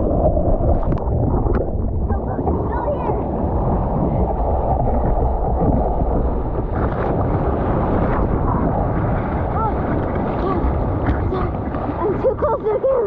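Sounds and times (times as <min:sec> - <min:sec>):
ocean water rushing: 0:00.0 - 0:13.0
wind rushing over camera: 0:00.0 - 0:13.0.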